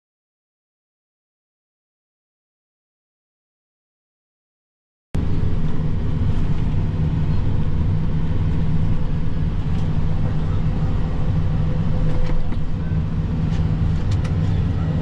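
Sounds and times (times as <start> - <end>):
tractor engine under load: 5.2 - 15.0.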